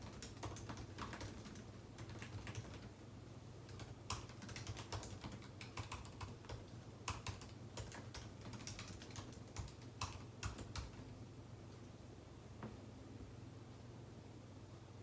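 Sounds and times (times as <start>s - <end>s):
computer keyboard typing: 0.0s - 2.9s, 3.7s - 11.0s
faint low hum: 0.0s - 15.0s.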